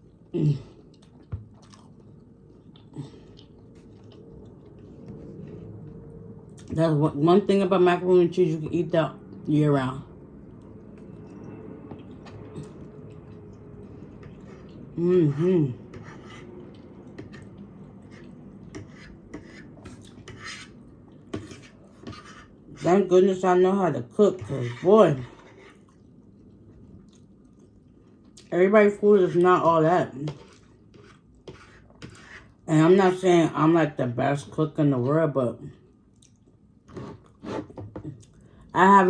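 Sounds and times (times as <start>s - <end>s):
chewing and mouth sounds: 0.7s - 5.0s, 25.7s - 28.5s, 35.9s - 37.4s.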